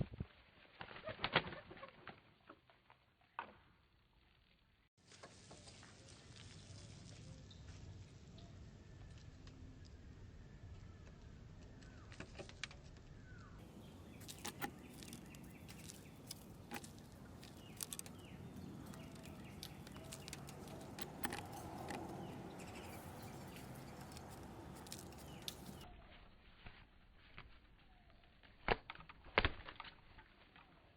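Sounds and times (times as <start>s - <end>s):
outdoor background noise: 0.0s - 30.9s
small birds chirping: 5.6s - 26.3s.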